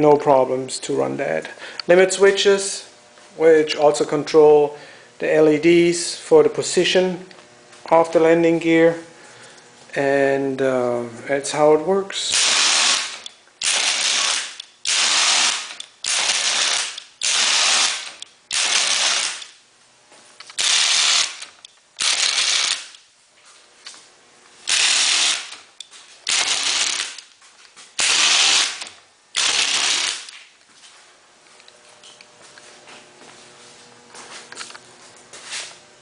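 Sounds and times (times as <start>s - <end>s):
electric winch motor and gears: 12.2s - 19.6s, 20.4s - 23.0s, 24.6s - 27.3s, 28.0s - 30.4s.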